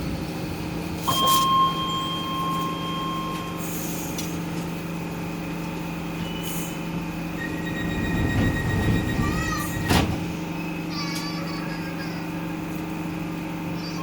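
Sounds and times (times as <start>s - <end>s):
train electric hum: 0.0s - 14.0s
electronic tone: 1.1s - 3.6s.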